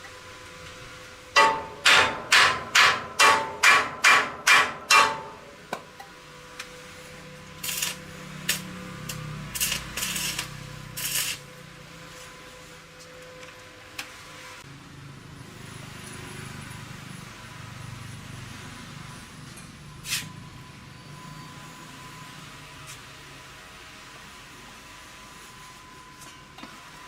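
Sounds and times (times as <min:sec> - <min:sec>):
hammer striking metal: 0:01.4 - 0:05.6.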